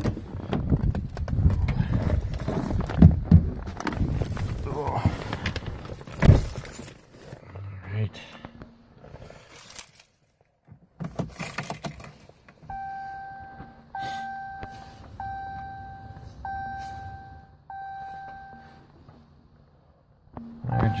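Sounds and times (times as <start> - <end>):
dashboard warning chime: 12.7 - 19.3, 20.4 - 21.0.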